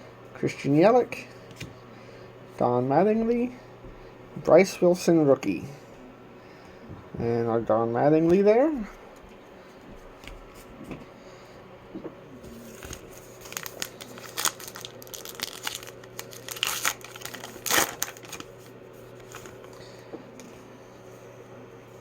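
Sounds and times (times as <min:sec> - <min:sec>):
card pack wrapper tearing: 0:12.6 - 0:19.8.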